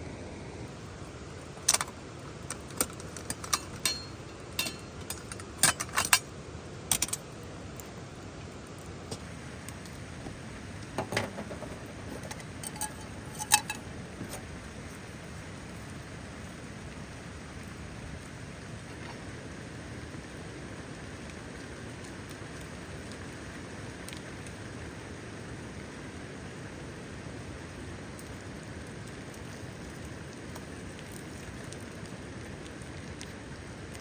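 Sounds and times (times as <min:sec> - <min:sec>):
steady rain: 0:00.0 - 0:34.0
sharp clicks and clinks: 0:02.5 - 0:06.2, 0:06.9 - 0:07.2, 0:11.0 - 0:14.4.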